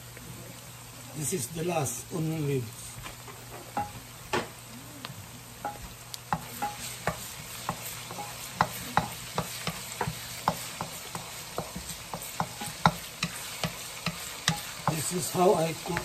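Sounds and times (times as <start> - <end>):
vegetables sizzling in oil: 0.0 - 16.0
spatula scraping and tapping a wok: 3.3 - 4.0, 5.6 - 16.0.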